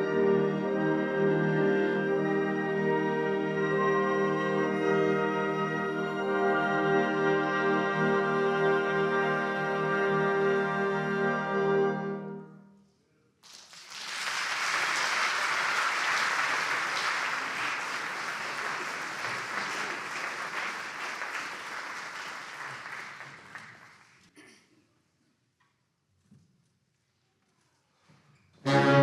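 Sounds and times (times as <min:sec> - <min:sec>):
audience applauding: 0:13.4 - 0:24.3.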